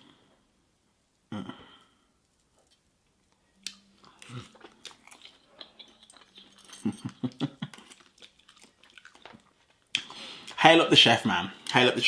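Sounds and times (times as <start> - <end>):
person chewing food: 2.1 - 10.6.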